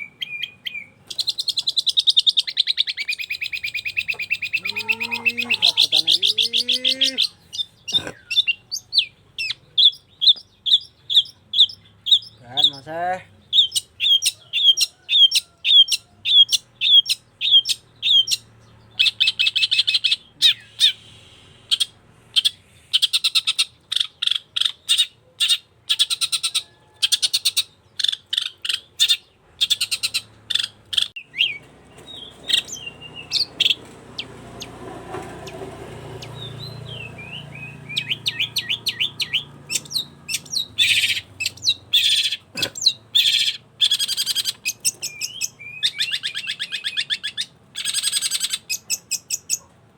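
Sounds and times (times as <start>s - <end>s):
bird singing sharp chirps: 27.2s - 49.7s.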